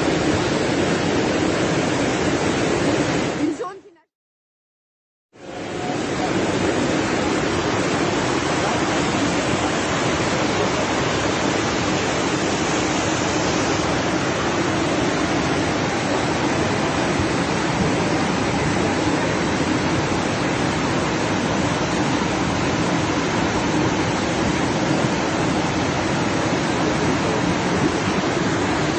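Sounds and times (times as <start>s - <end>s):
floodwater rushing: 0.0s - 4.0s, 5.4s - 28.9s.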